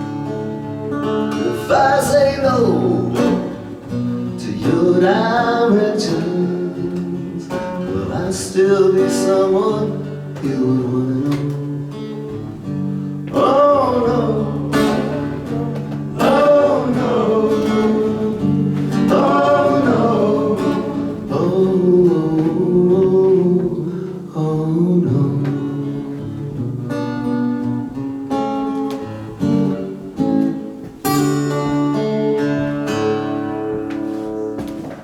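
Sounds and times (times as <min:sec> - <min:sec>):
acoustic guitar playing: 0:00.0 - 0:35.0
person singing wordless melody: 0:01.3 - 0:12.2, 0:13.2 - 0:26.7.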